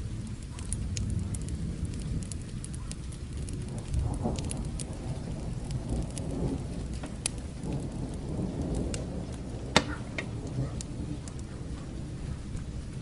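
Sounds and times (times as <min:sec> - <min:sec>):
distant thunder rumble: 0:00.0 - 0:13.0
fire crackling: 0:00.0 - 0:13.0
rain hiss: 0:00.0 - 0:13.0.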